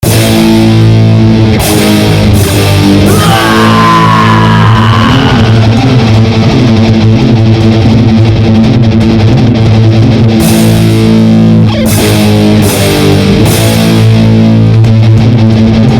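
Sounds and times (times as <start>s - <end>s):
heavy rock electric guitar chords: 0.0s - 15.9s
high sliding guitar line: 0.0s - 15.9s.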